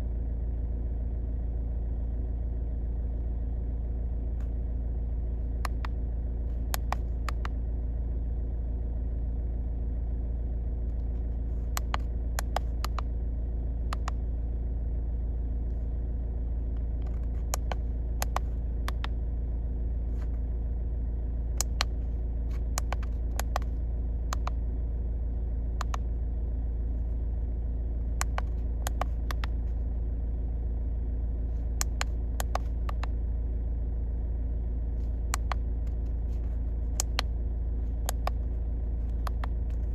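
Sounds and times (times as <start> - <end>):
car engine idling: 0.0 - 39.9
sharp clicks: 5.6 - 6.0, 6.7 - 7.6, 11.7 - 13.1, 13.9 - 14.2, 17.0 - 19.2, 21.6 - 22.0, 22.6 - 23.7, 24.3 - 24.6, 25.8 - 26.1, 28.2 - 29.6, 31.8 - 33.2, 35.3 - 37.3, 38.0 - 38.5, 39.1 - 39.9.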